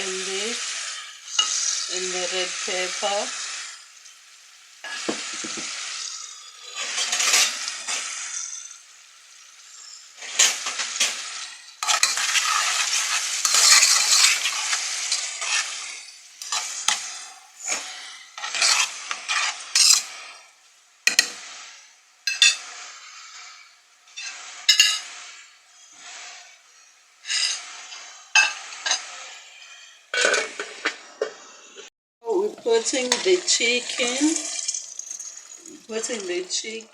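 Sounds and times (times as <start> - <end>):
vegetables sizzling in oil: 0.0 - 36.9
spoon scraping a pot: 0.5 - 4.2, 4.8 - 8.9, 9.6 - 20.5, 21.1 - 21.5, 22.3 - 31.9, 32.6 - 36.8.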